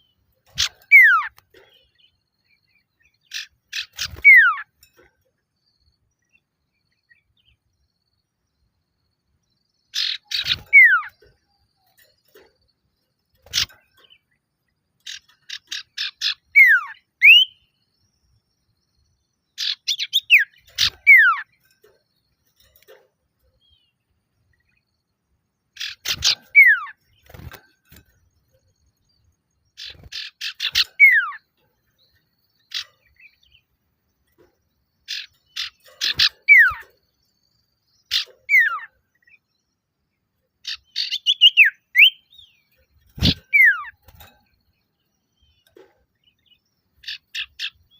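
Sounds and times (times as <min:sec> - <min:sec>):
bird calling with whistles: 0:00.6 - 0:01.4, 0:03.3 - 0:04.7, 0:10.0 - 0:11.2, 0:15.1 - 0:17.6, 0:29.8 - 0:31.4, 0:35.1 - 0:36.8, 0:41.0 - 0:42.3, 0:43.2 - 0:44.0.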